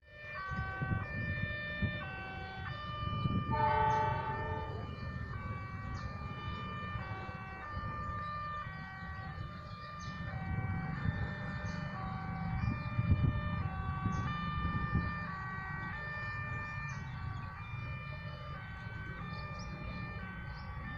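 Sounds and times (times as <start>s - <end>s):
two-tone electronic warning alarm: 0.1s - 20.9s
freight train rumbling past: 3.0s - 5.4s.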